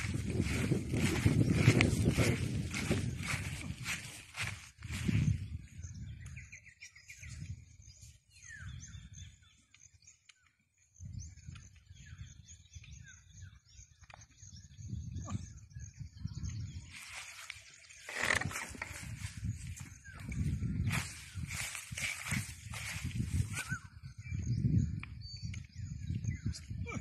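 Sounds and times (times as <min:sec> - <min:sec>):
wind or handling rumble: 0:00.0 - 0:09.4, 0:11.0 - 0:27.0
small birds chirping: 0:00.0 - 0:27.0.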